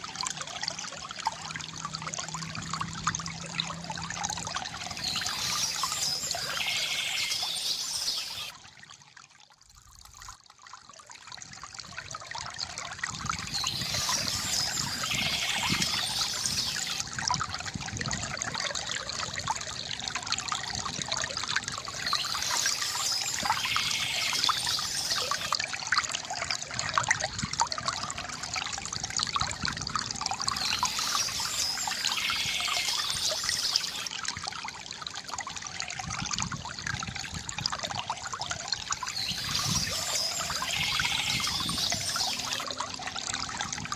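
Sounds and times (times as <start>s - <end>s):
fountain water trickling: 0.0s - 43.9s
birds chirping: 4.8s - 8.5s, 13.5s - 17.0s, 21.9s - 25.5s, 30.5s - 34.1s, 39.0s - 42.7s.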